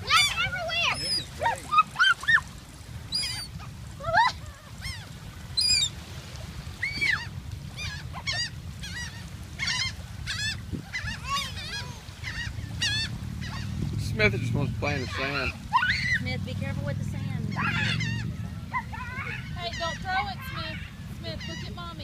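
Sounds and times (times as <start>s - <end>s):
seagulls calling: 0.0s - 6.1s, 6.7s - 22.0s.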